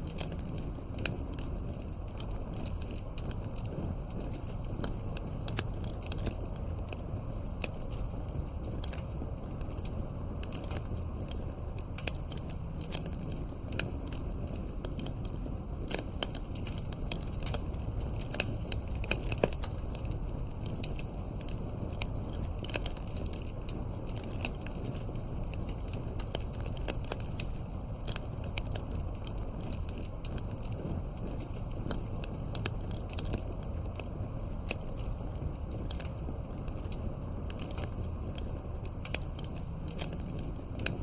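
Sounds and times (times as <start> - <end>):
campfire crackles and pops: 0.0 - 41.0
low rush of flame: 0.0 - 41.0.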